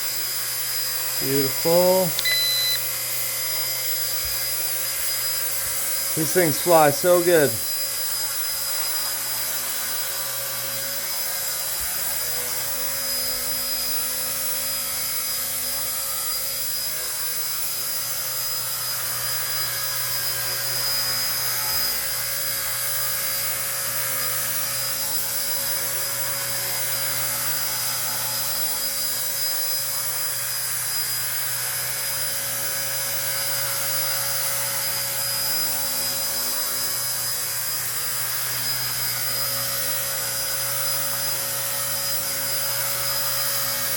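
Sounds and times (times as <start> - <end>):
toy helicopter motor whine: 0.0 - 43.9
rotor humming: 1.2 - 2.8.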